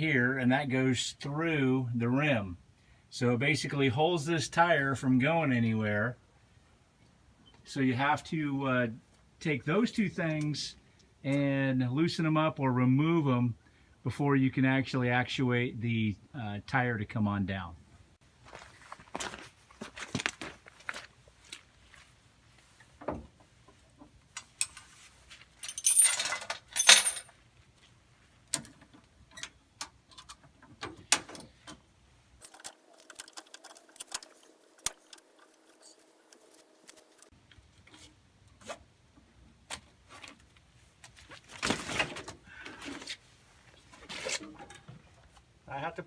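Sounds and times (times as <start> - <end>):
metal chain clinking and rattling: 25.6 - 27.3, 32.4 - 35.9.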